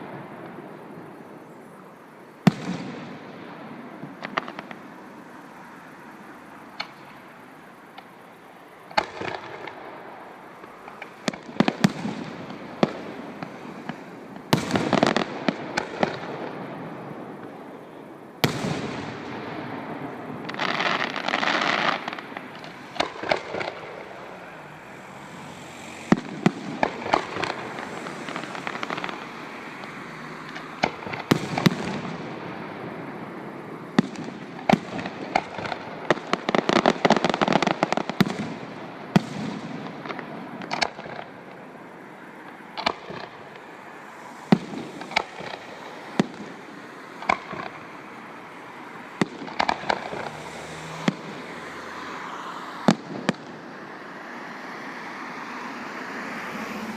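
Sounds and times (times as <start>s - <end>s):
fireworks bangs: 2.4s - 5.0s, 8.9s - 41.7s, 42.4s - 51.6s, 52.8s - 53.8s
fireworks crackling: 2.4s - 52.1s, 52.8s - 54.1s.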